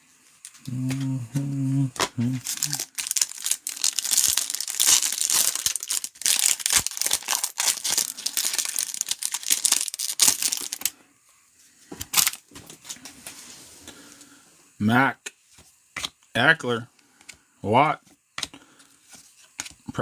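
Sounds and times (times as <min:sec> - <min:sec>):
wrapper tearing and crinkling: 0:02.4 - 0:10.9, 0:12.0 - 0:12.4.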